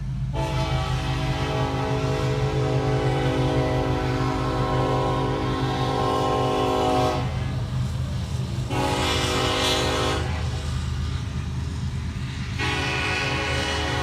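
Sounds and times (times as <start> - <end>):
low rumble of locomotive: 0.0 - 14.0
locomotive air horn blasts: 0.3 - 7.6, 8.6 - 10.8, 12.4 - 14.0.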